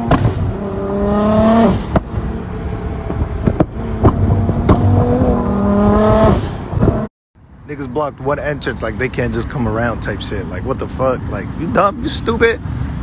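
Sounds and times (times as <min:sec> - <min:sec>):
sharp exhaust pops: 0:00.0 - 0:00.6, 0:01.4 - 0:02.2, 0:03.0 - 0:05.3
car engine revving hard: 0:00.0 - 0:07.1.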